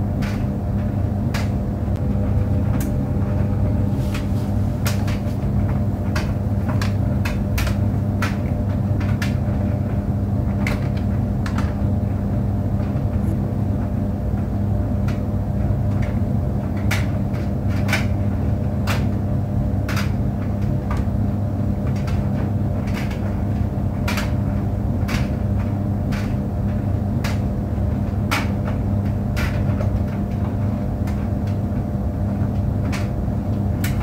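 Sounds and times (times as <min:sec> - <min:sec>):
tumble dryer humming: 0:00.0 - 0:34.0.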